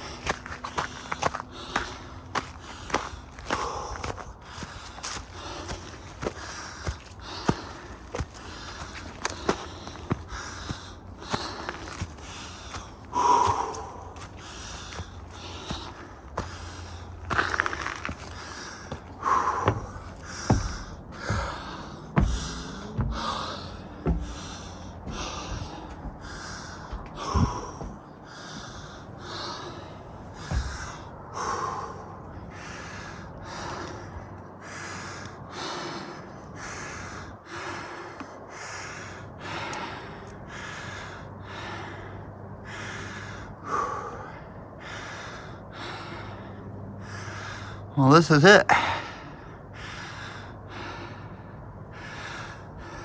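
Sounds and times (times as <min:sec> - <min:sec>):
man breathing hard: 0:00.0 - 0:53.0
thumps: 0:19.5 - 0:23.4.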